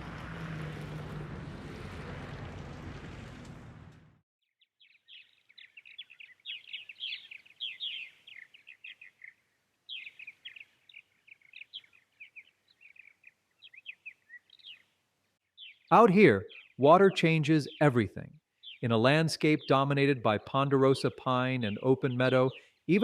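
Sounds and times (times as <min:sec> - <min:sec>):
small birds chirping: 0:04.6 - 0:23.0.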